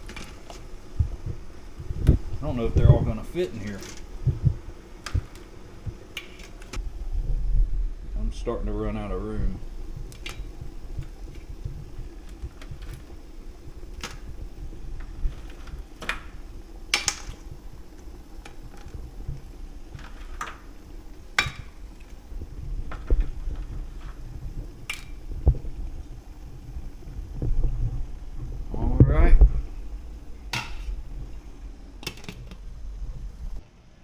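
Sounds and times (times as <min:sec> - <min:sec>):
steady low hum: 0:00.0 - 0:34.0
crab shells knocking on metal pot: 0:09.6 - 0:25.7, 0:30.3 - 0:31.2.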